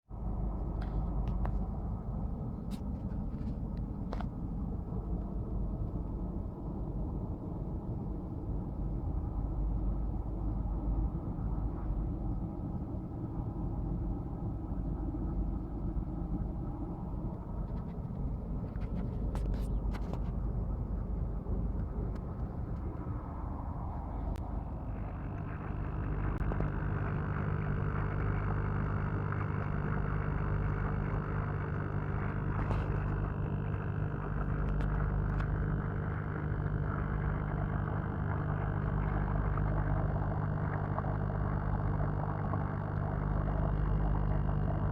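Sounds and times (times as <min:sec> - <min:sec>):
air compressor churning water: 0:24.5 - 0:44.9.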